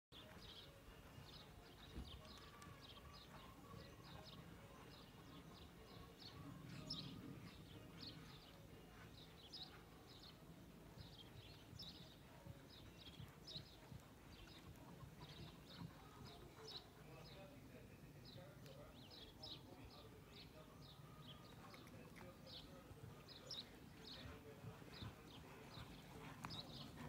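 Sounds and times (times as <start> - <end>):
faint birdsong chirps: 0.1 - 27.0.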